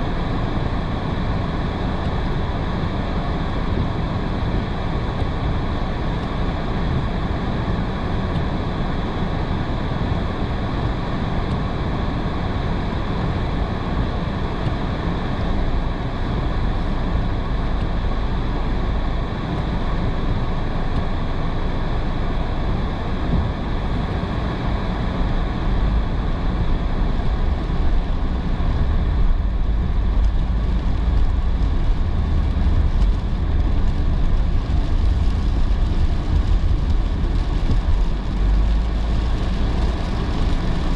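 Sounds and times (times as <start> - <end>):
tyre and road noise: 0.0 - 40.9
low rumble: 13.6 - 40.9
rain hiss: 23.7 - 40.9.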